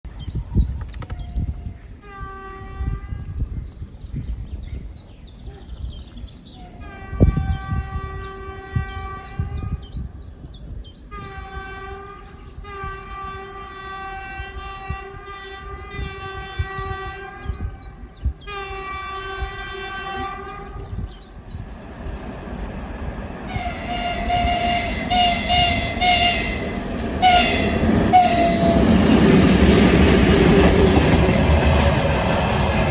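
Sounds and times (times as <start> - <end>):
train rumble and wheel noise: 11.0 - 32.9
locomotive horn blasts: 11.1 - 17.8, 18.4 - 21.0, 23.1 - 32.9.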